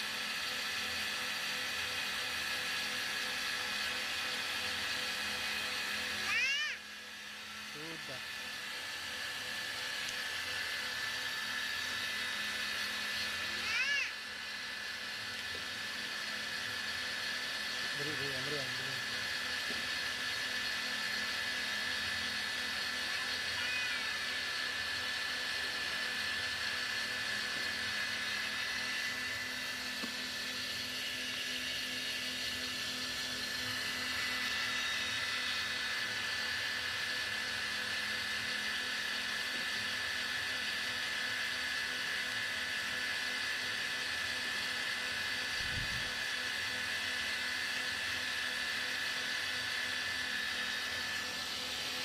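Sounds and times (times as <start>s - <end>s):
cotton candy machine humming: 0.0s - 52.0s.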